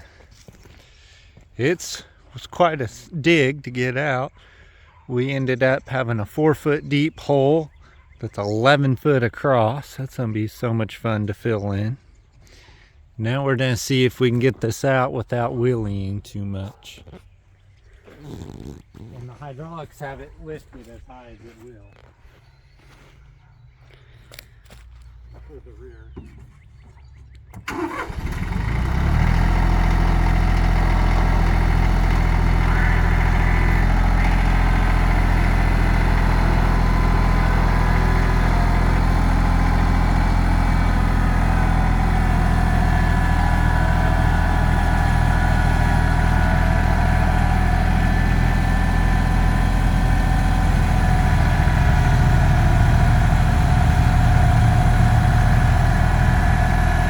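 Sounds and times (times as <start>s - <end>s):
tractor diesel engine: 27.5s - 57.0s.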